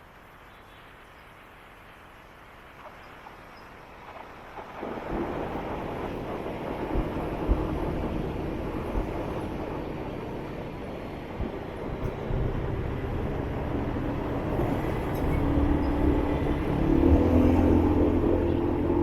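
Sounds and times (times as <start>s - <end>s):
road and wind noise: 0.0s - 19.0s
motorbike engine hum: 11.3s - 19.0s.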